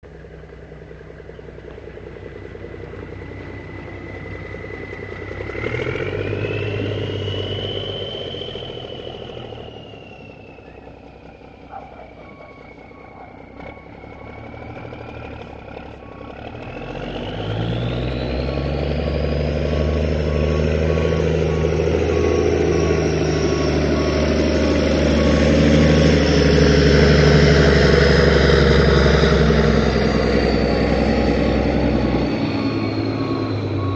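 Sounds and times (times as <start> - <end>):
high engine whine: 0.0 - 33.9
truck engine running: 0.0 - 33.9.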